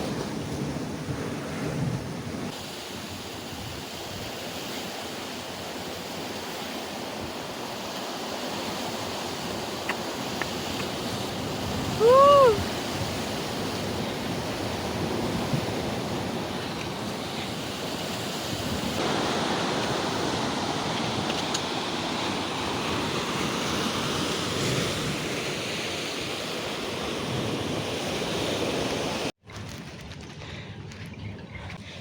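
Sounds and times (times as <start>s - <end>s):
ocean surf on rocky shore: 0.0s - 29.4s
wind buffeting microphone: 9.0s - 25.4s.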